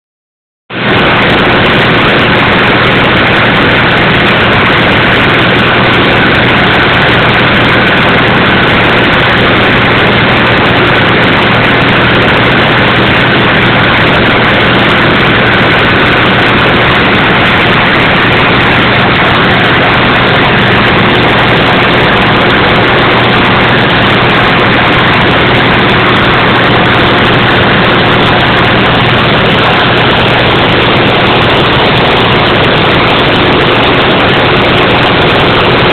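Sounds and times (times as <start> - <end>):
engine drone: 0.7 - 35.9.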